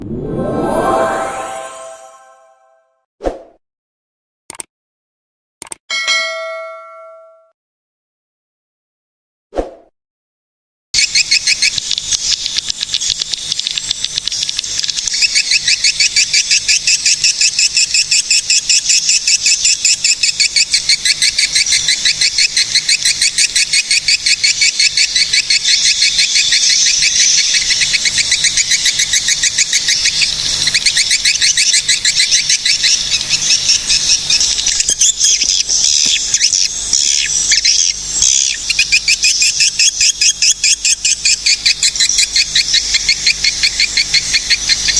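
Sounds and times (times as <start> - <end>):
birds twittering rapid chirps: 19.4 - 44.9.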